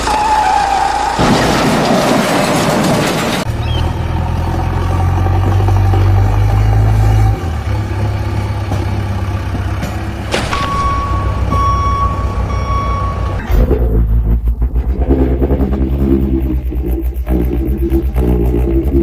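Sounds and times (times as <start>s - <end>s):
truck engine running: 0.0s - 19.0s
reversing beeps: 10.4s - 13.8s.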